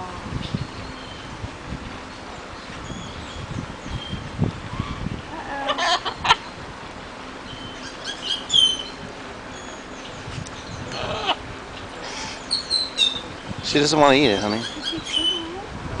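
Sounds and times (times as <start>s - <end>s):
parrots squawking: 4.7s - 6.5s, 7.6s - 9.8s, 10.8s - 13.3s, 14.2s - 15.6s.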